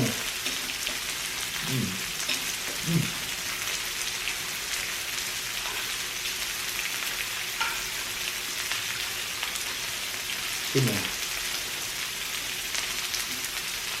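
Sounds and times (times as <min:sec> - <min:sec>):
meat sizzling on a grill: 0:00.0 - 0:14.0
voiced murmurs: 0:01.6 - 0:02.1.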